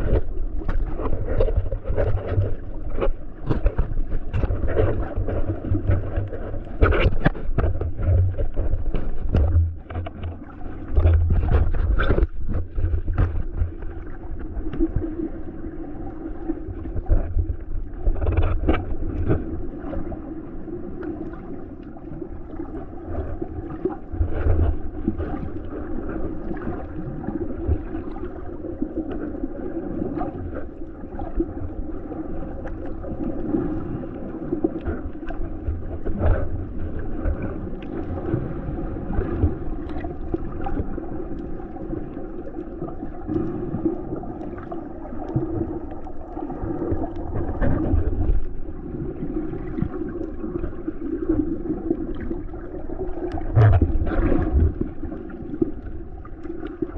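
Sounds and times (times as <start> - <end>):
muffled sea water sloshing: 0.0 - 56.9
low rumbles and knocks: 3.6 - 13.9.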